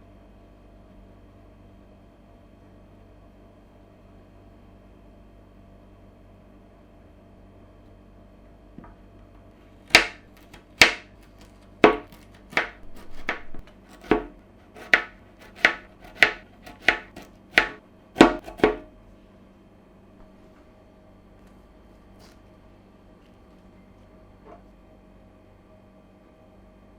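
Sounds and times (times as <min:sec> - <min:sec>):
knife chopping on cutting board: 0:09.9 - 0:18.9.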